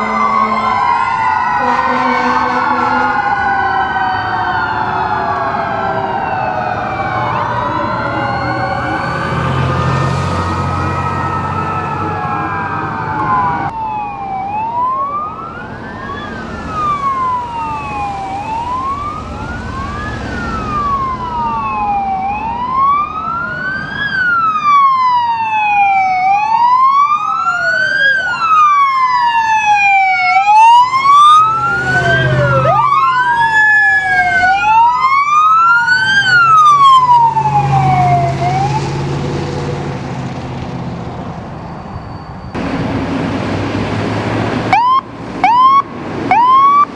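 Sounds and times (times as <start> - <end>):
emergency sirens wailing: 0.0 - 46.9
vehicle engine rumble: 4.7 - 24.8, 29.6 - 46.9.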